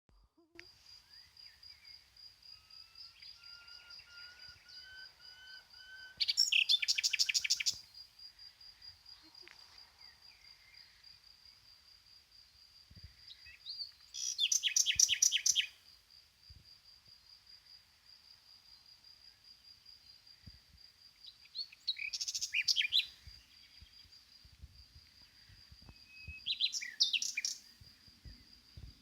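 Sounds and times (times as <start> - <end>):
loud fast bird trill: 3.0 - 7.8
soft chirped bird phrases: 6.1 - 7.8.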